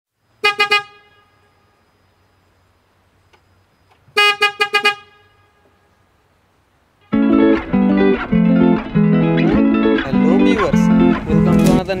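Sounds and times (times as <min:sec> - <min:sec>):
horn tooting: 0:00.4 - 0:01.8, 0:04.1 - 0:05.9, 0:07.0 - 0:08.4.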